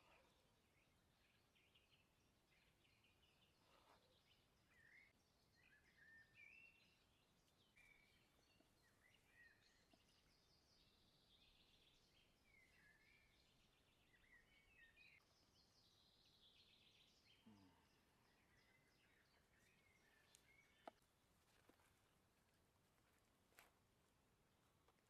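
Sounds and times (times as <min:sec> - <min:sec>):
songbirds chirping and whistling: 0:00.0 - 0:21.7.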